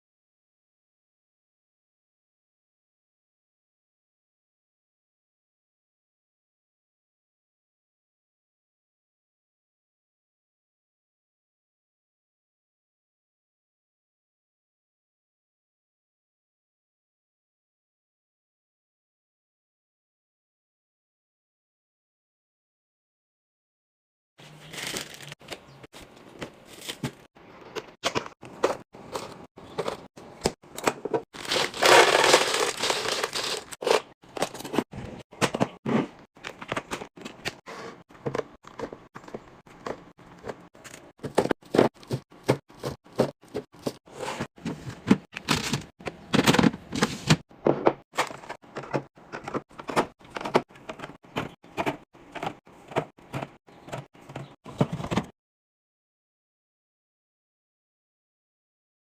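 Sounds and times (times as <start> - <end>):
packaging rustling: 24.5 - 25.6, 31.4 - 34.8
packaging clicks and crinkles: 24.6 - 25.6, 31.4 - 34.8.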